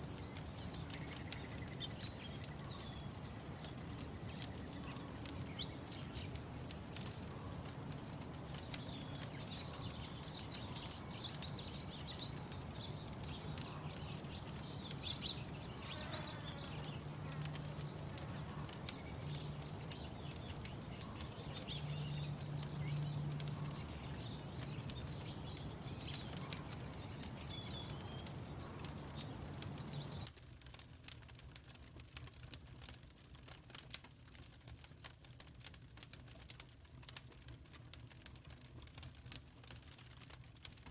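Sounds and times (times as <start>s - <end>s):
small birds chirping: 0.0s - 30.3s
wood fire crackling: 0.0s - 40.9s.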